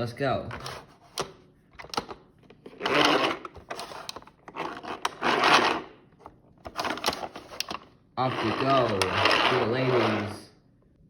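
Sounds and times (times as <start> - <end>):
toy train rustling rumble: 8.2 - 10.4.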